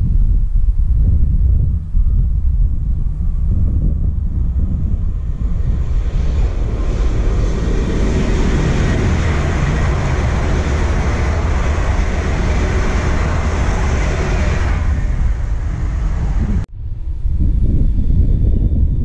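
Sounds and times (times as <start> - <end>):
electric train passing at speed: 3.2 - 16.7.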